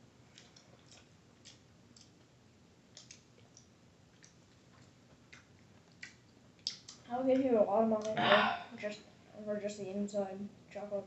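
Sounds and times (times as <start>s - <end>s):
wet mouth clicks of chewing: 0.3s - 2.3s, 2.9s - 7.1s.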